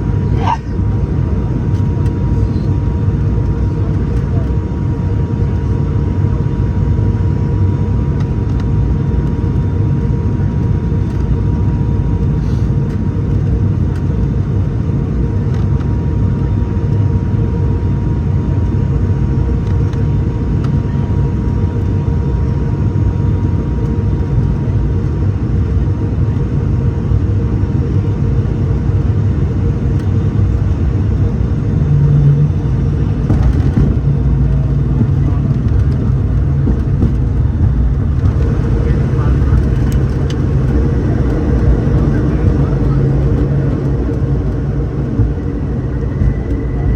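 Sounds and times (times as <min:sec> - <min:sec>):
turboprop engine drone: 0:00.0 - 0:46.9
deeper hum: 0:18.2 - 0:46.9.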